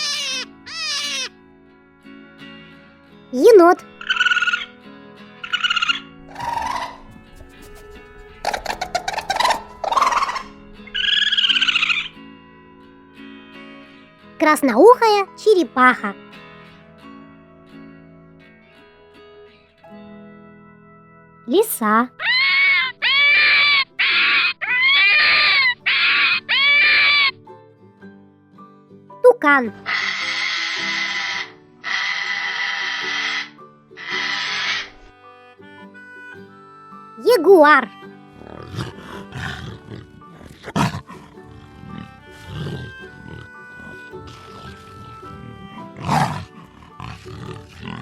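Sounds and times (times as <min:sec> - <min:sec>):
fox screaming: 0:00.0 - 0:01.3, 0:03.4 - 0:04.7, 0:05.4 - 0:12.2, 0:22.1 - 0:27.4, 0:29.7 - 0:35.1, 0:38.4 - 0:48.0
soft background music: 0:00.0 - 0:48.0
jaguar roaring calls: 0:03.8 - 0:04.7, 0:05.4 - 0:12.2, 0:22.2 - 0:27.3, 0:29.8 - 0:35.1, 0:38.4 - 0:48.0.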